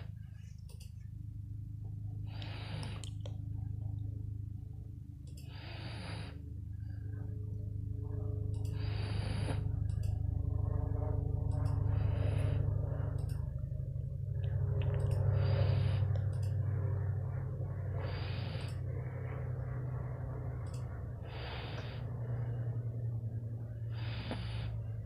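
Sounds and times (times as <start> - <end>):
dog snoring: 5.5 - 6.4, 8.8 - 9.6, 23.9 - 24.7.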